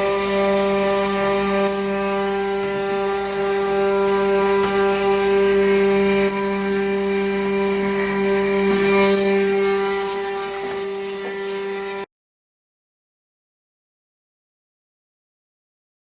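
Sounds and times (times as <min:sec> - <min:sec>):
router spindle whining: 0:00.0 - 0:12.1.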